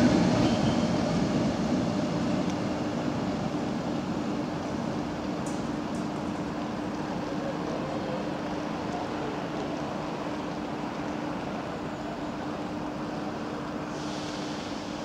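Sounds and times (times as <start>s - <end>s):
electric train pulling away: 13.3s - 15.0s.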